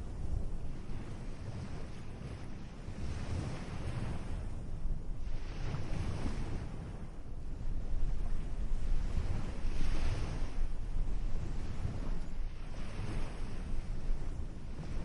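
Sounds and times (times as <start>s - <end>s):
ocean waves washing in: 0.0s - 15.0s.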